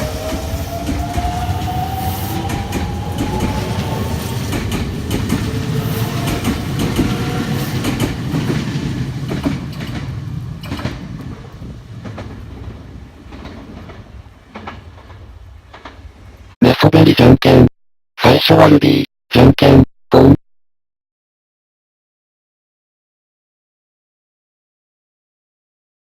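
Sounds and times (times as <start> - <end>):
wheels clacking over rail joints: 2.4 - 16.1.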